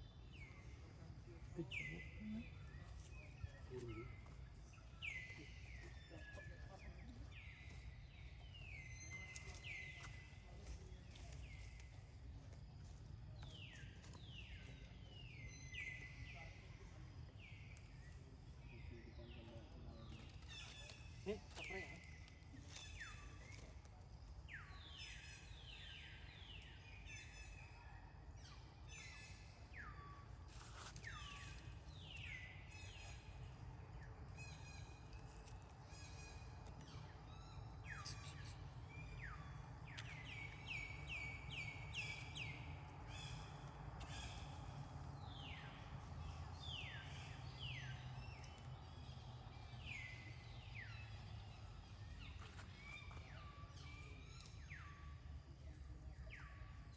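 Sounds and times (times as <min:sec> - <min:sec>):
birds calling faintly: 0:13.3 - 0:56.9.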